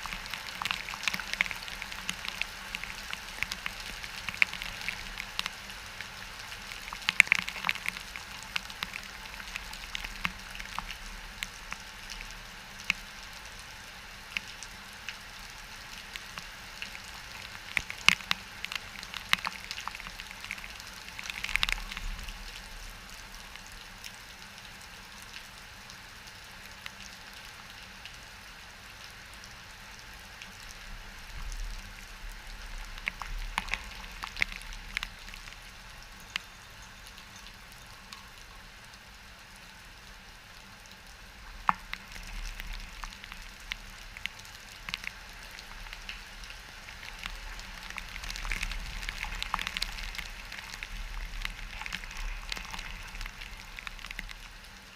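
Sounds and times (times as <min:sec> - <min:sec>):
rain on hard surfaces: 0:00.0 - 0:54.9.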